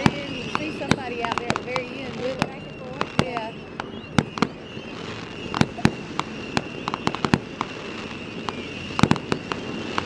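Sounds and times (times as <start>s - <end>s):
fireworks bangs and pops: 0.0s - 10.0s.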